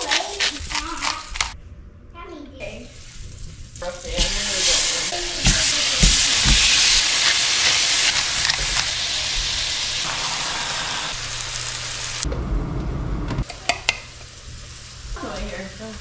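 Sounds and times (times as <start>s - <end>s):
meat sizzling in a frying pan: 2.9s - 12.3s
low rumble: 11.2s - 13.4s.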